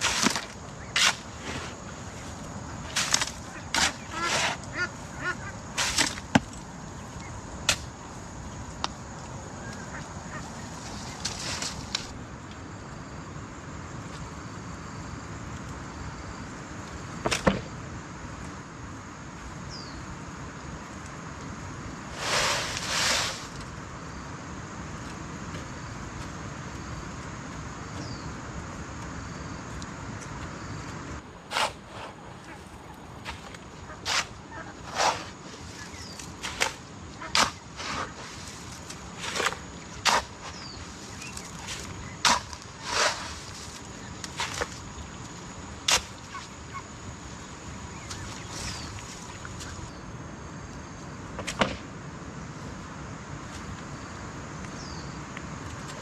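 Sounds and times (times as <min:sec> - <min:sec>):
steady background hiss: 0:00.0 - 0:56.0
short rasping scrape: 0:31.5 - 0:32.2.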